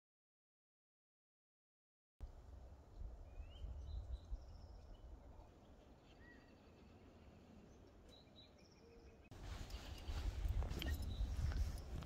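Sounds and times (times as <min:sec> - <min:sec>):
faint bird chirps: 0:03.2 - 0:09.3.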